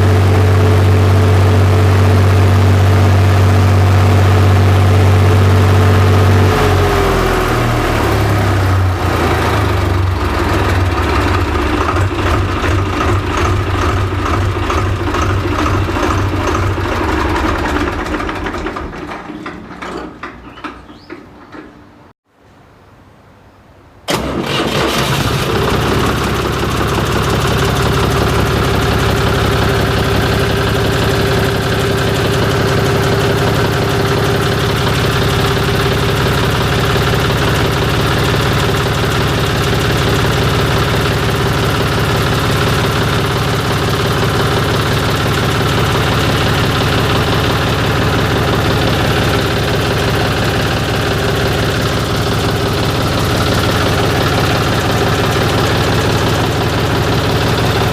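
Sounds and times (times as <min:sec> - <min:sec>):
diesel tractor engine idling: 0:00.0 - 0:22.1, 0:24.1 - 0:57.9.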